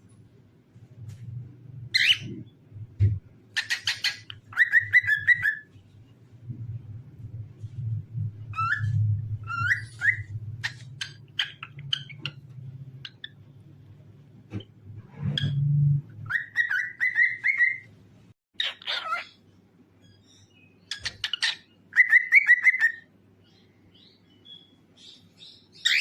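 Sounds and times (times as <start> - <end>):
cockatiel whistling and chirping: 1.9 - 2.4, 3.6 - 5.7, 8.5 - 12.4, 16.2 - 17.9, 20.0 - 23.0, 25.8 - 26.0
steady low hum: 5.7 - 16.3.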